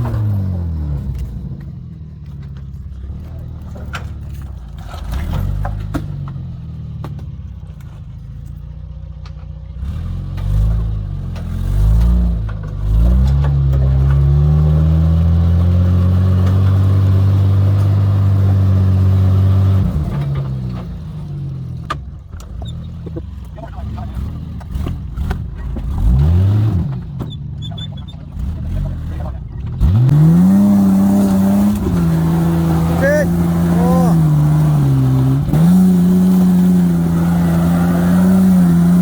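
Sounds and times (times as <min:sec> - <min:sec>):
engine revving: 0:09.8 - 0:20.9, 0:23.7 - 0:27.2, 0:28.3 - 0:39.0.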